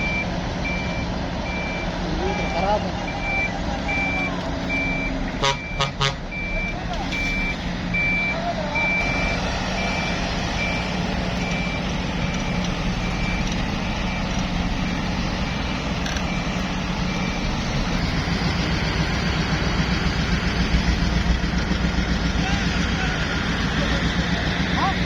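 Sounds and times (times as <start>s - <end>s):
back-up alarm beeping: 0.0s - 18.7s
diesel engine running: 0.0s - 25.0s.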